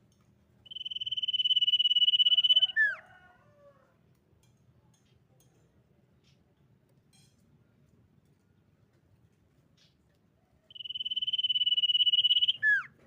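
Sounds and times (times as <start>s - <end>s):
bird whistling: 0.7s - 3.0s, 10.7s - 12.9s.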